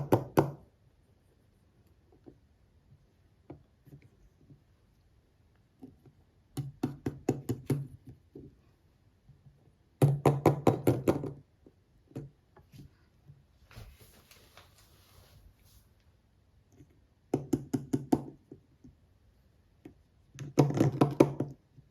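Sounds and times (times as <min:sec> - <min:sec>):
tapping on small hard objects: 0:10.0 - 0:11.4, 0:20.3 - 0:21.6.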